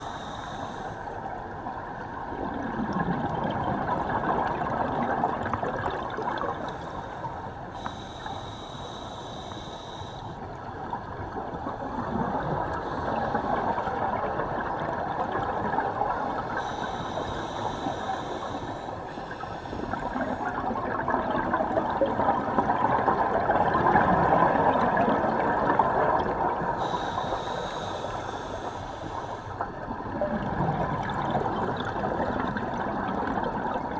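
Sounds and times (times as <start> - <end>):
regulator inhale hiss: 0.0 - 1.3, 6.4 - 10.6, 11.6 - 20.7, 26.5 - 29.7
bubbling exhale gurgle: 11.0 - 28.7, 29.8 - 33.9.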